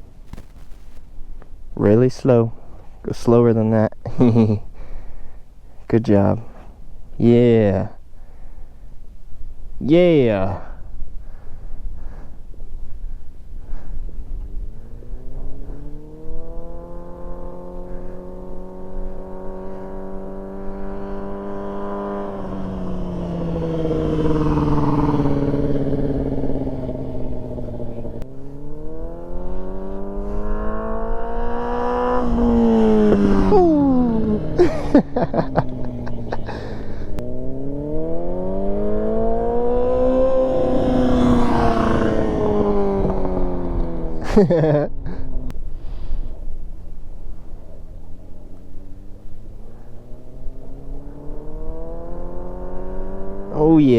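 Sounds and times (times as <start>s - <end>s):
exhaust crackling: 0.0s - 3.5s, 10.1s - 53.9s
motorcycle engine revving: 14.2s - 45.6s, 46.8s - 53.9s.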